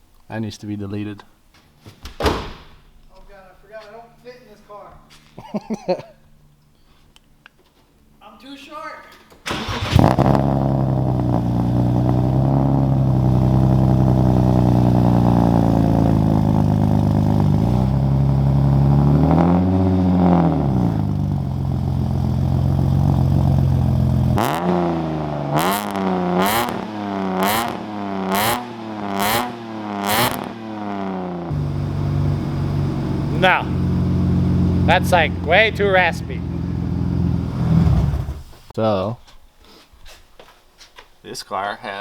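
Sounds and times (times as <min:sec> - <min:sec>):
raspy car engine revving: 0:09.5 - 0:38.7.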